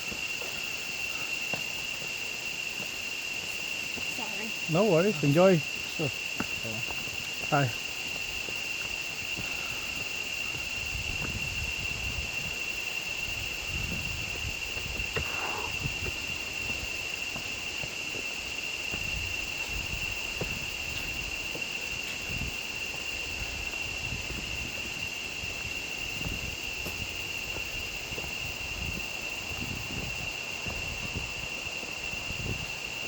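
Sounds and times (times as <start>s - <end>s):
high-pitched insect drone: 0.0s - 33.0s.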